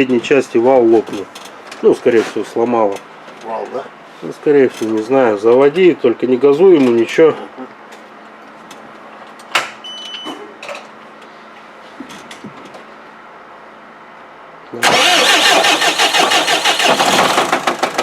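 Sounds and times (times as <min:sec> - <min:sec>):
diesel engine knocking: 0:16.8 - 0:18.0.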